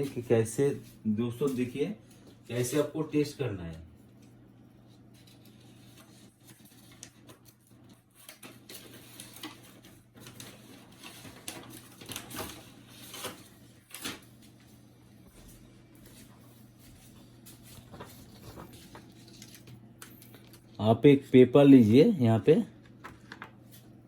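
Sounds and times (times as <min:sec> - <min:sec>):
paper rustling: 0:04.0 - 0:20.8.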